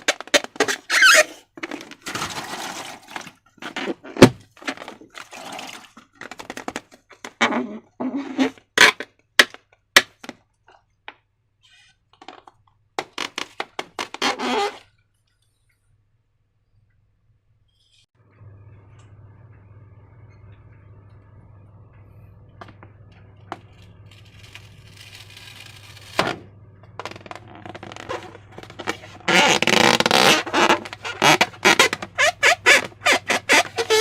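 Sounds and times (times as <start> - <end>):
faint low hum: 15.0 - 29.3.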